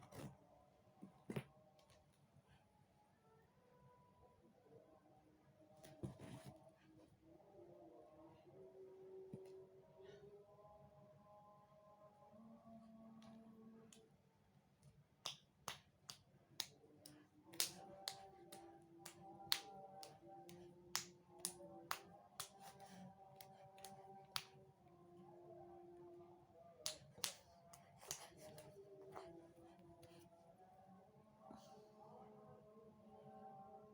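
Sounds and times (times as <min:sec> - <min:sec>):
baby clapping hands: 0:15.2 - 0:24.6, 0:26.8 - 0:29.3.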